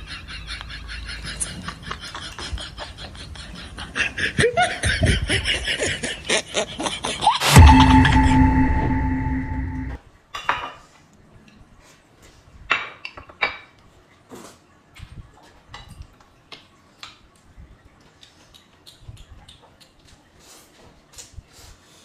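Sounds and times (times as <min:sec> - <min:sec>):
loud steady tone: 0:07.4 - 0:10.0.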